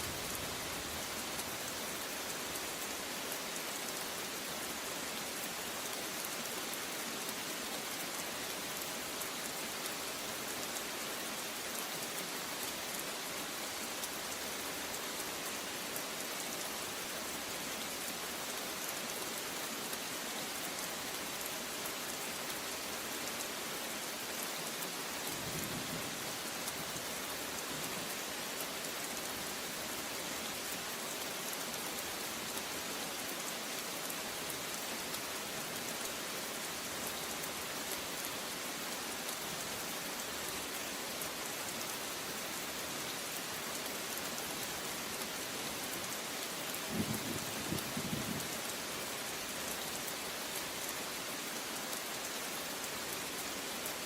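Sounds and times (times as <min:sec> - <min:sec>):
steady rain falling: 0:00.0 - 0:54.0
low rumble of thunder: 0:46.9 - 0:48.5.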